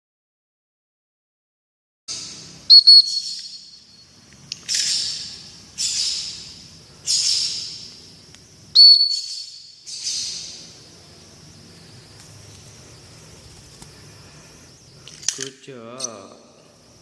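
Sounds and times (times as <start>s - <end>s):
high steady whistle: 2.6s - 4.2s, 8.7s - 9.8s.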